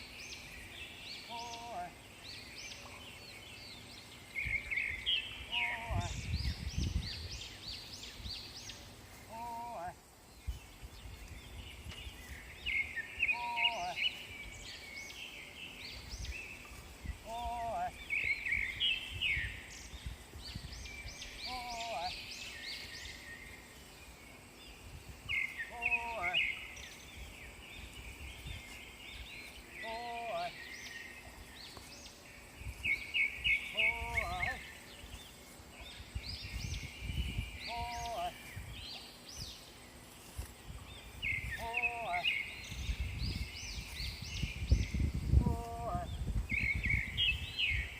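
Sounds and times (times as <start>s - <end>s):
small birds chirping and singing: 0.0s - 47.9s
low held bird call: 5.4s - 6.3s, 13.2s - 14.1s
short pitched bird calls: 12.8s - 14.2s, 32.9s - 34.9s, 37.2s - 39.1s, 41.2s - 42.8s.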